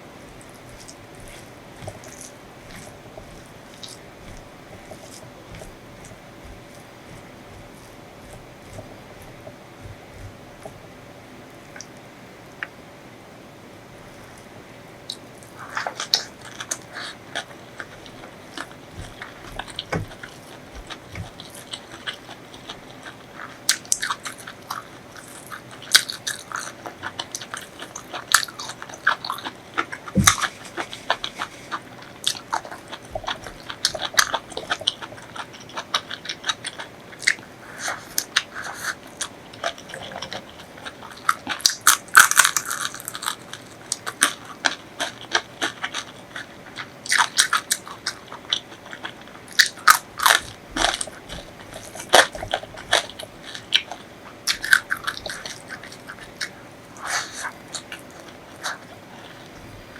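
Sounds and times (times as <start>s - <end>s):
person chewing crunchy food: 0.0s - 12.7s, 13.9s - 59.9s.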